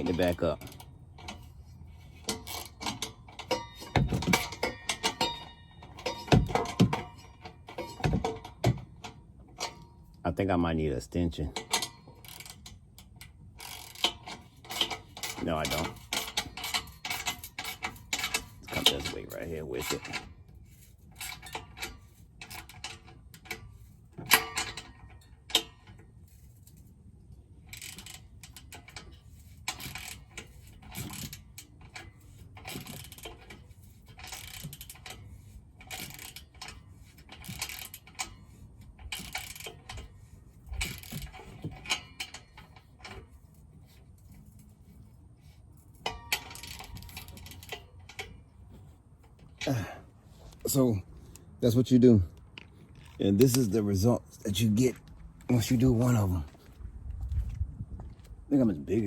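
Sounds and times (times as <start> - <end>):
metal knocks: 2.3 - 9.8
ratchet wrench clicking: 11.6 - 26.8, 27.6 - 43.4.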